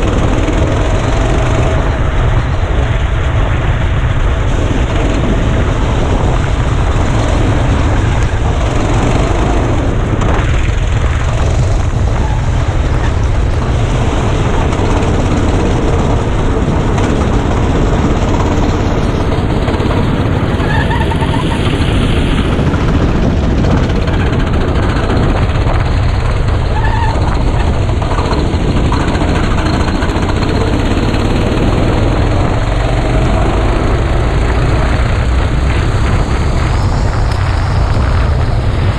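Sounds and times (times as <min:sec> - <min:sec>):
go-kart engine running: 0:00.0 - 0:38.9
wind noise on microphone: 0:00.0 - 0:38.9.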